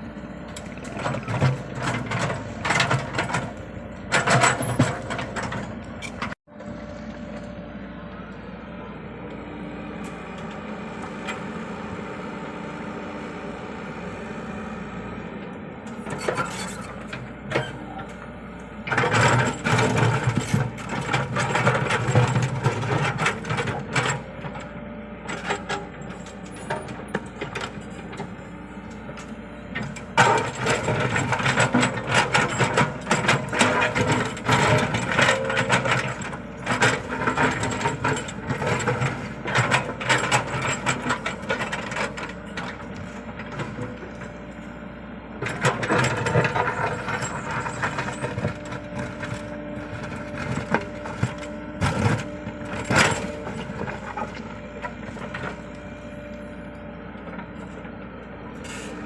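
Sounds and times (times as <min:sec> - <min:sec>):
excavator diesel engine: 0:00.0 - 0:59.0
metallic clanks and rattles: 0:00.6 - 0:06.4, 0:29.0 - 0:44.3, 0:45.4 - 0:55.6.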